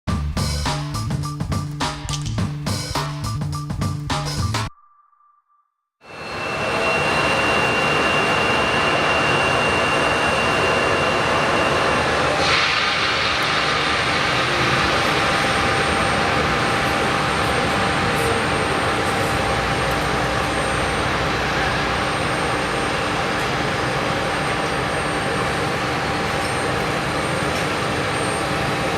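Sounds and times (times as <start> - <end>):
aircraft engine and propeller: 6.1 - 28.9.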